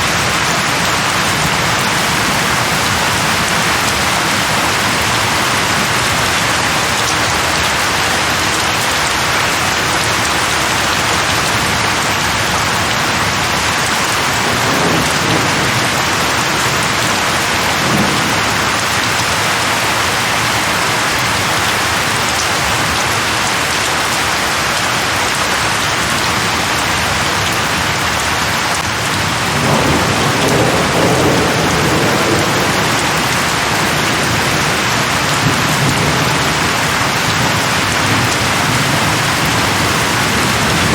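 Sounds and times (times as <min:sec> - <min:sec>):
heavy rain: 0:00.0 - 0:40.9
low rolls of thunder: 0:01.4 - 0:06.7, 0:29.3 - 0:40.9.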